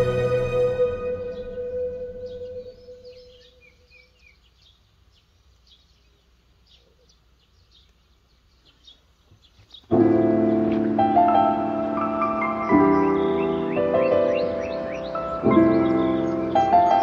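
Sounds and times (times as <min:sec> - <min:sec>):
music: 0:00.0 - 0:03.0, 0:09.9 - 0:17.0
small birds chirping: 0:01.2 - 0:17.0.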